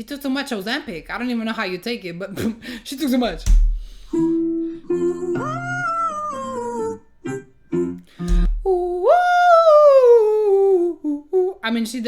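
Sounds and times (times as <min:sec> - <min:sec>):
piano notes: 0:03.3 - 0:09.1
woman vocalising scales: 0:04.1 - 0:11.8.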